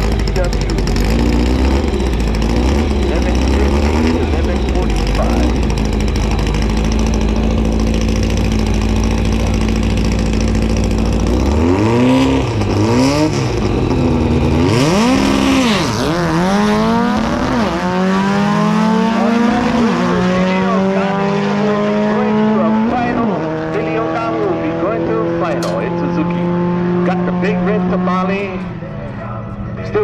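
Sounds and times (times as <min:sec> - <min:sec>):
race car engines: 0:00.0 - 0:30.0.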